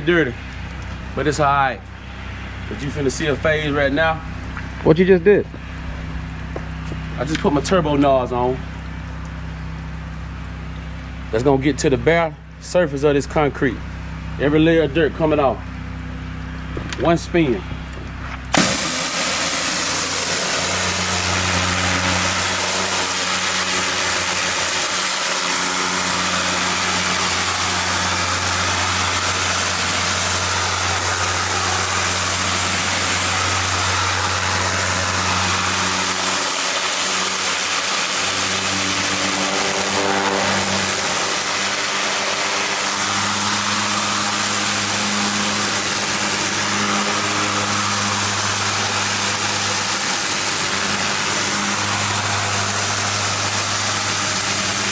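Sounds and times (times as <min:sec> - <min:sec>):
pressure washer engine running: 0:00.0 - 0:54.9
water spraying onto concrete: 0:18.3 - 0:54.9.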